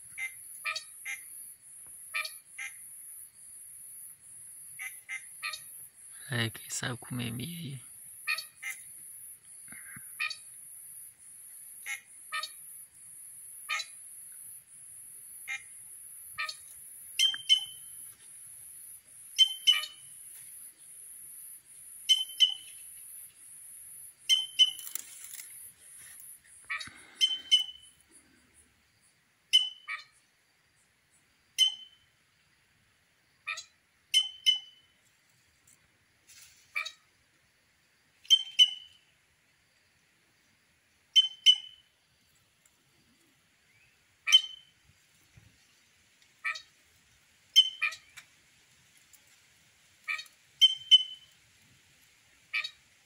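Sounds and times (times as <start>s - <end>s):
short buzzy bird calls: 15.4s - 18.0s, 22.1s - 22.8s, 26.6s - 28.0s
birds giving short sharp calls: 15.4s - 18.1s, 19.4s - 20.6s, 22.1s - 23.0s, 24.2s - 28.0s, 38.2s - 39.0s, 44.3s - 44.7s, 47.6s - 48.2s, 50.0s - 51.3s.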